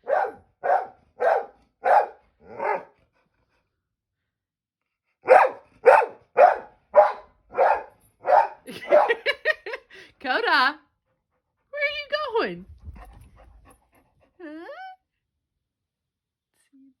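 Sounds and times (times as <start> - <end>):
dog barking sharply: 0.0 - 2.9, 5.2 - 9.2.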